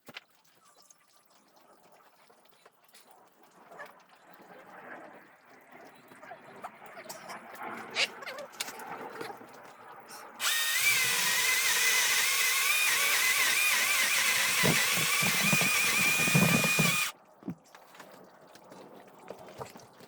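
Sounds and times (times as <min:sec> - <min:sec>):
power drill whining: 0:10.4 - 0:17.1.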